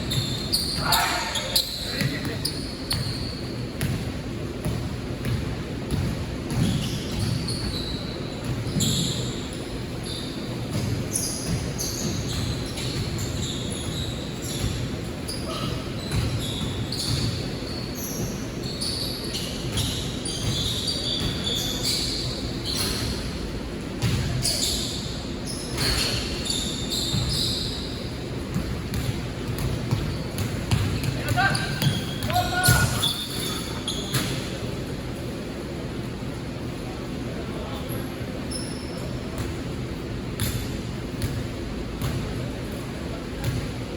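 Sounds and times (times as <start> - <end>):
sneakers squeaking on floor: 0.0 - 35.8, 36.4 - 42.8
players' voices: 0.6 - 2.7, 30.6 - 35.5
basketball bouncing on court: 1.7 - 9.4, 10.5 - 18.3, 19.6 - 21.6, 23.9 - 24.5, 27.0 - 33.2, 40.3 - 42.5, 43.4 - 43.8.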